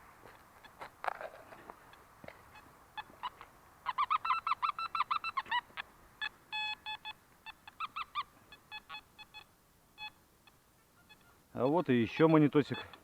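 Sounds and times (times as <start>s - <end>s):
metal detector beeps: 6.2s - 8.0s, 8.6s - 13.0s.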